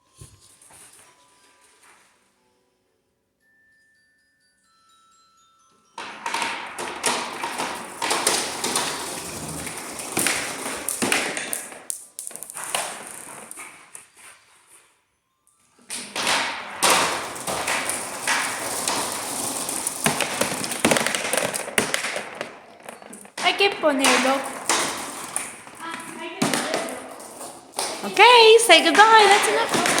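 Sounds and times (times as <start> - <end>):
marbles rattling down tubes: 6.0 - 14.1, 15.9 - 30.0.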